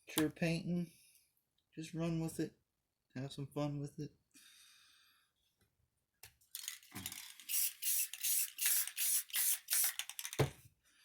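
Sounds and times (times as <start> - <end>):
spray paint can hissing: 7.4 - 10.3.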